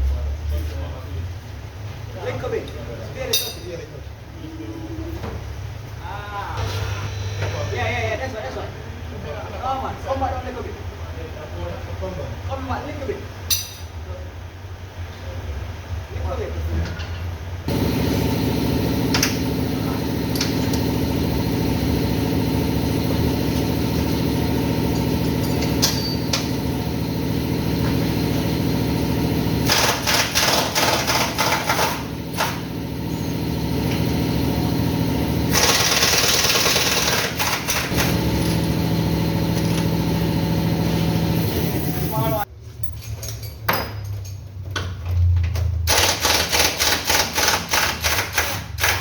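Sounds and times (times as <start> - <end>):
motor running steadily: 6.6 - 8.2, 17.7 - 42.5
rapid rattling hammering: 29.3 - 33.0.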